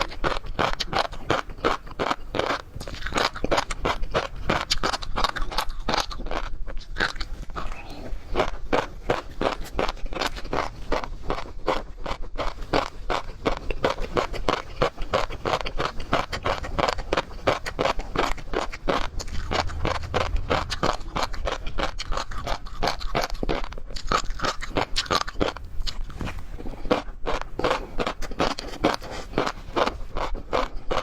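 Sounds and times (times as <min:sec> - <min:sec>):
crunchy chewing of seafood: 0:00.0 - 0:31.0.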